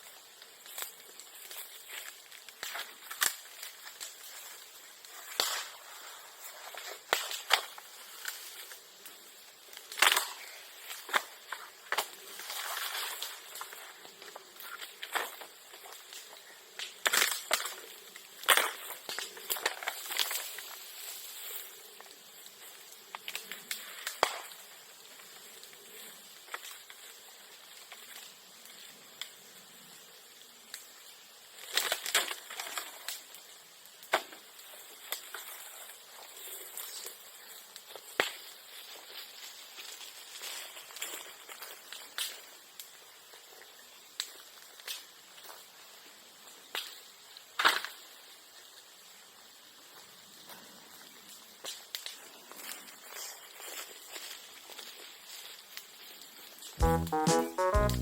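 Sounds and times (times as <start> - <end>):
sharp pops of fire: 0.0 - 25.7, 30.7 - 43.0, 46.6 - 48.1
bonfire crackling: 0.0 - 58.0.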